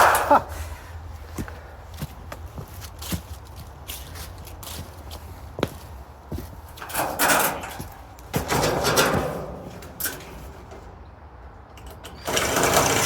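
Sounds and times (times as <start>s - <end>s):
metal panels scraping and rattling: 6.7s - 13.0s.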